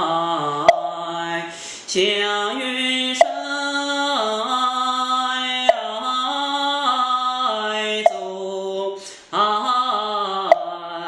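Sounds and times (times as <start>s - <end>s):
person softly chanting: 0.0s - 11.0s
quick breath: 1.5s - 1.9s, 9.0s - 9.3s.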